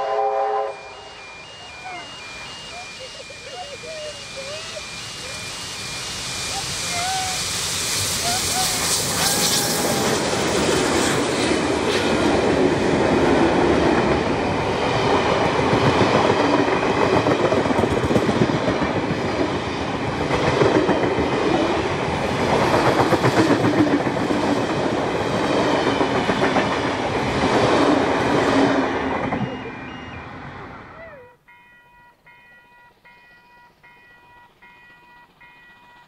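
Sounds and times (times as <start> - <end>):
train wheels clickety-clack: 6.6 - 29.6.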